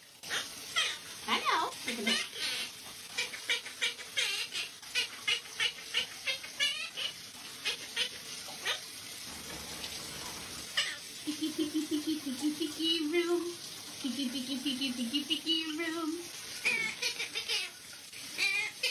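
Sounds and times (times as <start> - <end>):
parrot chirping: 0.3 - 8.8, 16.6 - 17.8.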